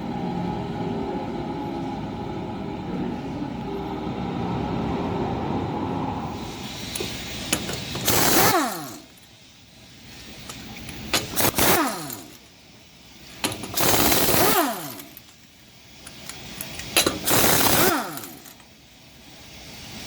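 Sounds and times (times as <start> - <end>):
impact wrench hammering: 6.8 - 9.3, 10.4 - 12.5, 13.3 - 15.4, 16.0 - 18.7.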